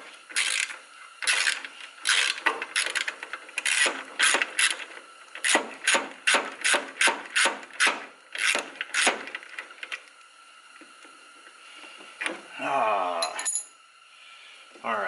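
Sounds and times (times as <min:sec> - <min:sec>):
ratchet wrench clicking: 0:00.4 - 0:04.8.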